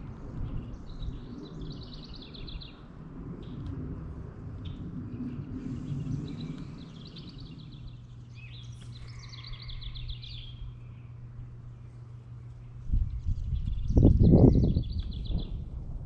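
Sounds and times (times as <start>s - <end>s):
low steady hum: 0.0s - 16.0s
songbird trilling: 6.3s - 11.1s.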